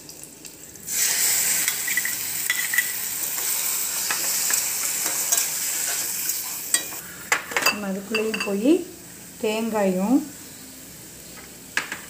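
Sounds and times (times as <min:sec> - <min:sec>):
tomatoes sizzling in hot oil: 0:00.0 - 0:11.8
spatula scraping and tapping pan: 0:01.7 - 0:08.5.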